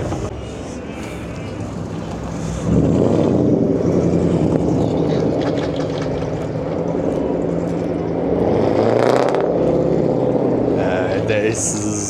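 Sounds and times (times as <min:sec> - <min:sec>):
car engine revving loudly: 0:02.6 - 0:11.4.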